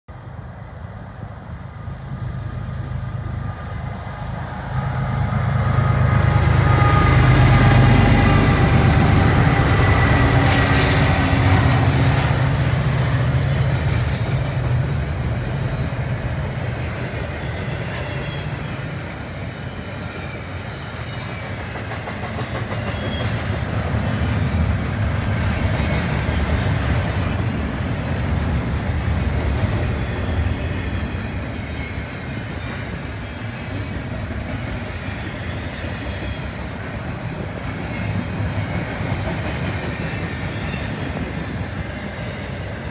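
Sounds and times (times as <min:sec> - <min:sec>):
diesel locomotive drone: 0:00.1 - 0:42.9
freight cars rumbling over rails: 0:00.2 - 0:42.9.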